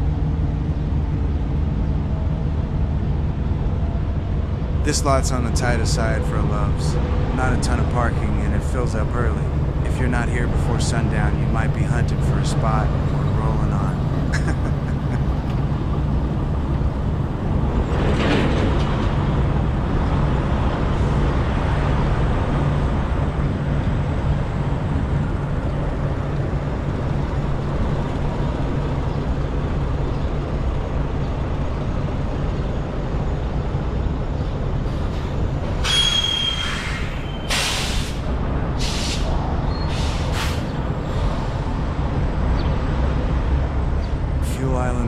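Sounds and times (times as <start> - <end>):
diesel trucks idling: 0.0 - 45.0
air-brake hiss: 35.8 - 41.6.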